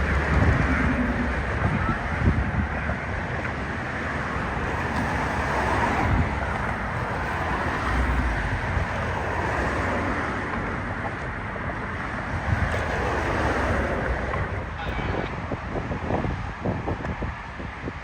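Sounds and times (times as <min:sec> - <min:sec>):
wind thumps on microphone: 0:00.0 - 0:03.7, 0:12.4 - 0:18.0
locomotive hauling freight cars: 0:00.0 - 0:17.6.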